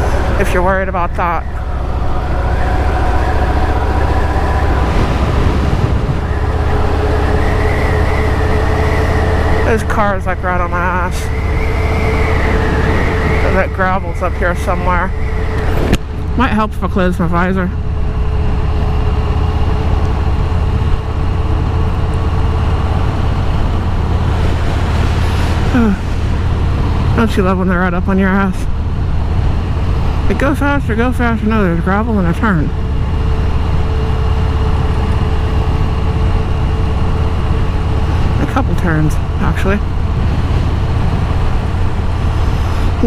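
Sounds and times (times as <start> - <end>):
motorcycle engine running: 0.0 - 43.0
wind rumble: 0.0 - 43.0.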